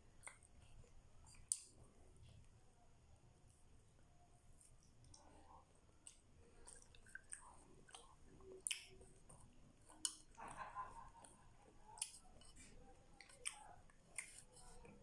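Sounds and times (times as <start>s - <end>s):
faint chewing: 0.1s - 2.6s, 4.4s - 15.0s
wet mouth clicks: 6.0s - 10.5s, 11.8s - 12.6s, 13.2s - 15.0s.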